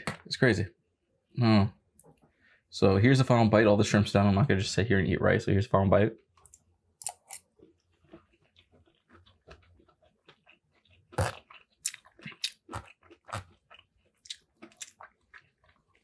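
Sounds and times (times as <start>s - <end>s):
chewing and crunching food: 6.2s - 16.0s.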